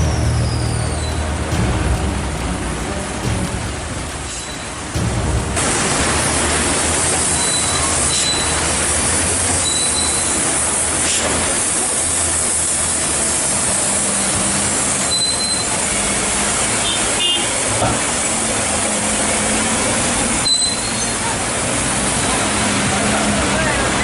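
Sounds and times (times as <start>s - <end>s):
high-pitched squeals: 0.0s - 10.8s, 20.4s - 21.4s
heavy rain pouring: 0.0s - 24.0s
truck diesel engines droning: 0.0s - 24.0s.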